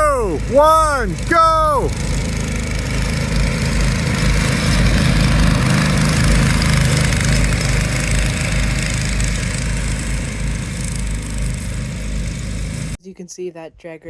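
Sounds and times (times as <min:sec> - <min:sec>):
small engines running: 0:01.9 - 0:13.0.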